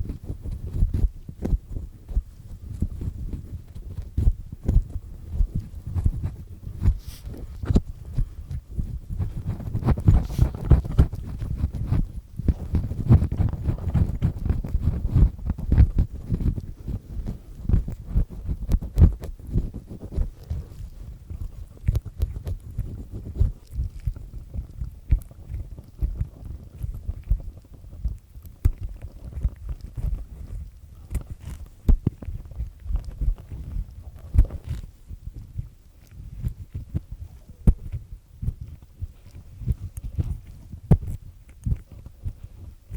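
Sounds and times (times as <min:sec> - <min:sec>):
ear pick scratching in ear: 0:00.0 - 0:42.9.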